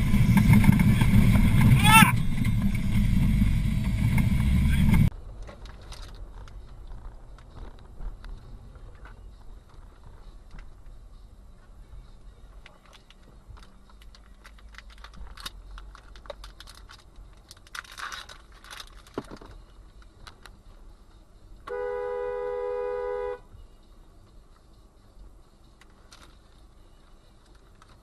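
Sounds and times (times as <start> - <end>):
light clicks and rattles: 5.4 - 11.0, 12.5 - 20.6
car horn: 21.6 - 23.5.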